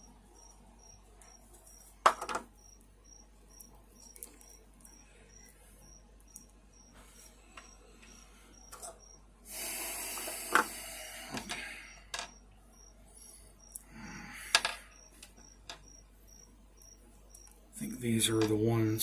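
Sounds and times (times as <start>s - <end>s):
crickets chirping: 0.0s - 19.0s
small hard parts clicking: 10.2s - 12.4s.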